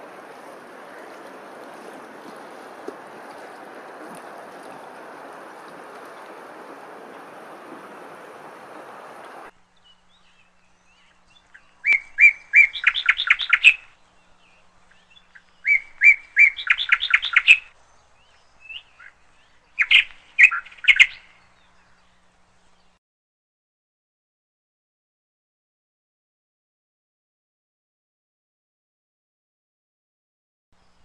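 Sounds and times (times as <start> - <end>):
steady rushing noise: 0.0 - 9.5
songbird singing: 0.0 - 23.0, 30.8 - 31.0.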